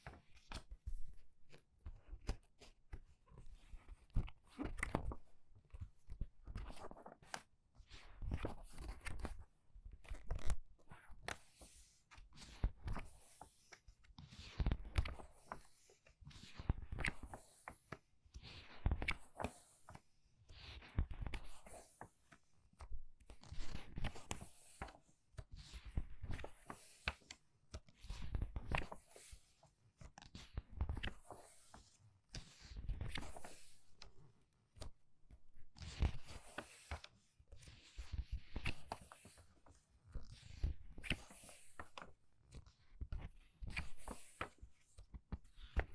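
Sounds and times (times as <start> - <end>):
book pages turning: 8.3 - 9.3, 14.6 - 15.9, 23.2 - 25.0, 25.8 - 29.4, 30.1 - 34.0, 35.8 - 37.1, 38.5 - 39.5, 40.6 - 42.1, 43.2 - 45.9.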